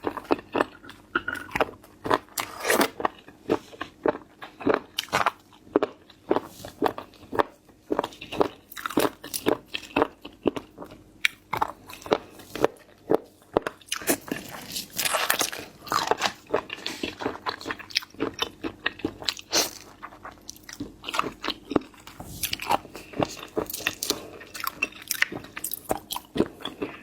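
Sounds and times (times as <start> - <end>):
crunchy seafood chewing: 0.0 - 27.0.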